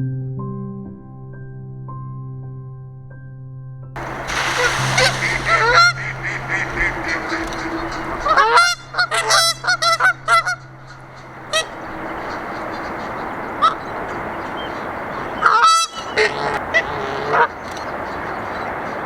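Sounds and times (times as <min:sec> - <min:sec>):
background hiss: 0:04.0 - 0:09.7
waterfowl calling: 0:04.0 - 0:19.0.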